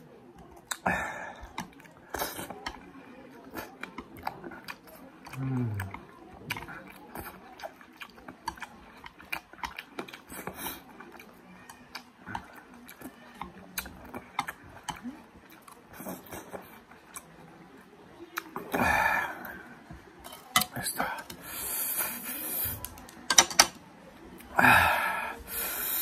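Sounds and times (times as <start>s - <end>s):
person chewing watermelon: 0.4s - 19.6s.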